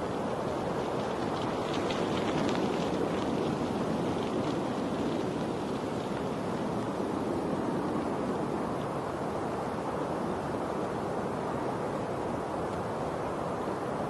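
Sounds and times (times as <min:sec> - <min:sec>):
rushing water: 0:00.0 - 0:14.0
faint ticks: 0:12.6 - 0:12.9.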